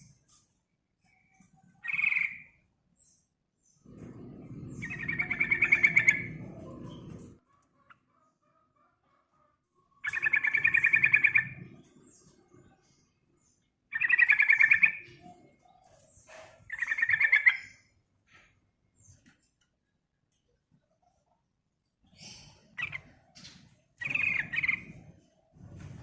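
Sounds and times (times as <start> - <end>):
bulbul chattering calls: 4.8 - 6.3, 10.0 - 11.7, 13.9 - 15.1, 16.7 - 17.8, 24.0 - 24.9.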